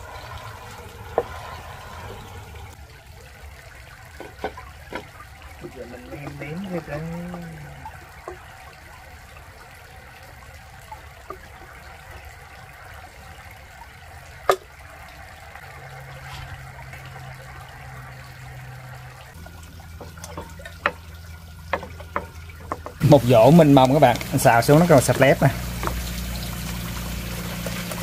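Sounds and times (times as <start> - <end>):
greens sizzling in a frying pan: 20.0 - 28.0.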